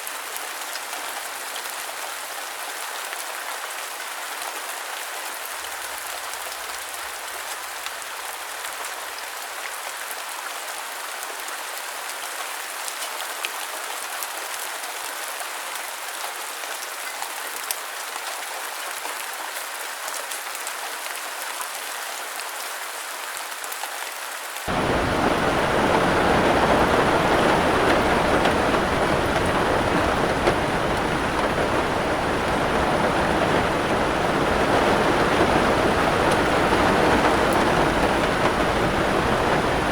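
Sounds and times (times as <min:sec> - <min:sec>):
steady rainfall: 0:00.0 - 0:39.9
raindrops ticking: 0:24.7 - 0:39.9.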